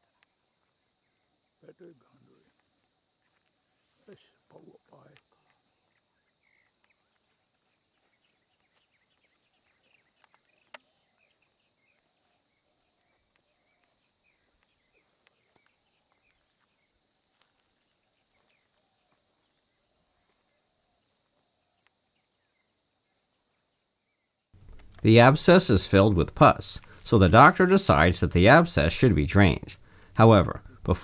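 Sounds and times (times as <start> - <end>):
high insect hum: 24.6 - 31.0.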